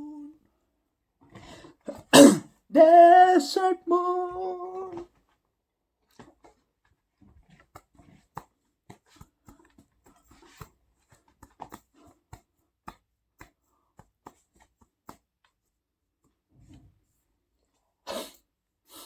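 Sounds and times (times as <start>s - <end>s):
faint clicks and taps: 6.1s - 16.8s.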